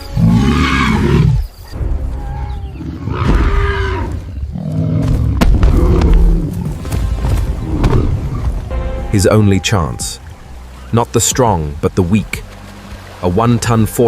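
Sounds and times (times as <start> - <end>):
lion roaring: 0.1 - 1.4, 2.8 - 6.8.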